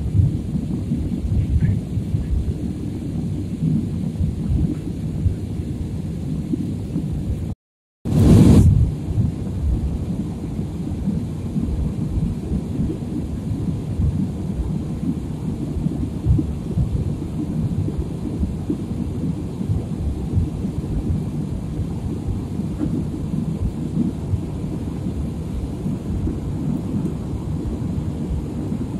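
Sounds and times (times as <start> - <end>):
jet engine and airflow rumble: 0.0 - 28.9.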